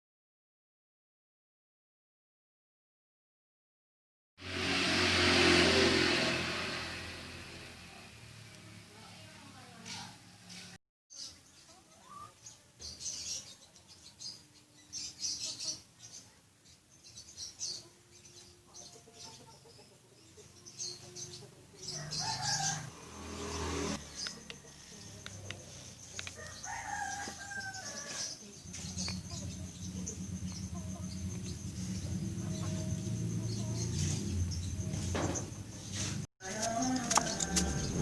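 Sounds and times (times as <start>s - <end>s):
rooster crowing: 21.8s - 24.5s, 26.4s - 28.5s, 36.4s - 38.0s.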